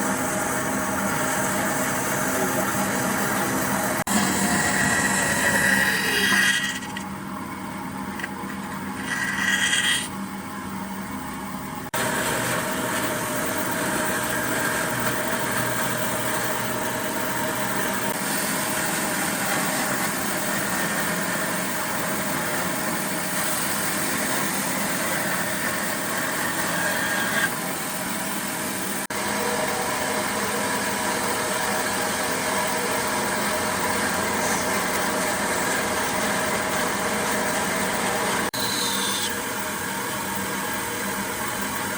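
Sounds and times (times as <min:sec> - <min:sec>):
motor humming: 0:00.0 - 0:11.2.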